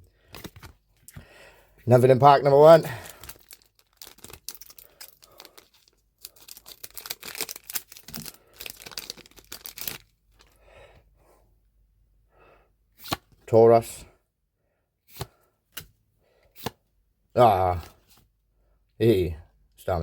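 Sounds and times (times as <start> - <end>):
faint handling sounds: 2.6 - 10.6
foil wrapper tearing and crinkling: 2.8 - 10.6.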